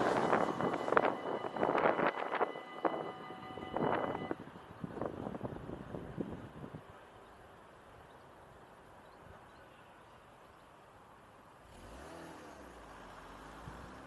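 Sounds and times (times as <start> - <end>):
car accelerating past: 11.6 - 14.0.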